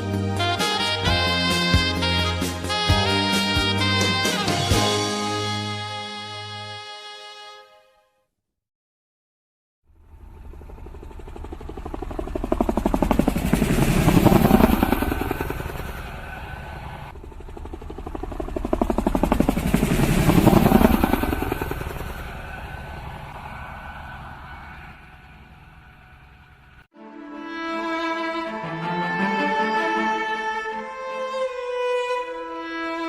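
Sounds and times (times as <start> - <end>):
vehicles passing by: 9.9 - 26.8.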